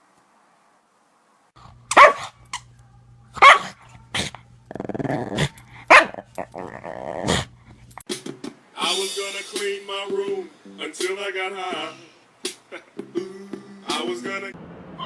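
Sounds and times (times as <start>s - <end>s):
low steady hum: 1.6s - 8.0s
dog barking: 1.9s - 2.4s, 3.4s - 4.4s, 5.3s - 6.6s
dog growling: 3.4s - 8.0s.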